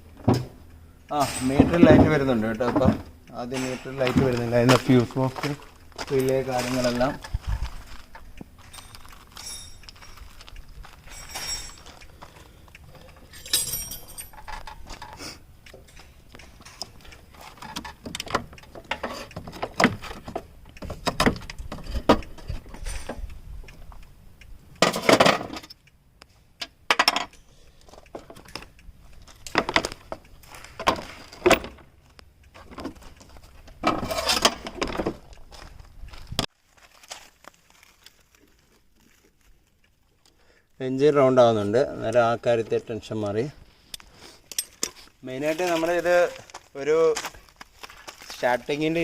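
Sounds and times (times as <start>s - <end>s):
metallic rattling: 1.2s - 12.2s, 12.9s - 23.3s
tools clinking on metal: 8.6s - 12.3s, 12.9s - 19.4s, 44.5s - 45.0s.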